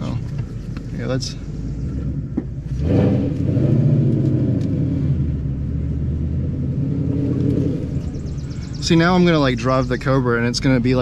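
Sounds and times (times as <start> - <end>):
car exhaust rumble accelerating: 0.0 - 11.0.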